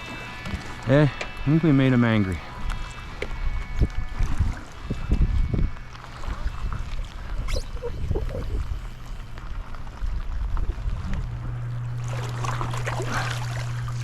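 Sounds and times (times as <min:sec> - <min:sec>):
steady low hum: 0:00.0 - 0:14.0
wind buffeting microphone: 0:03.3 - 0:11.6.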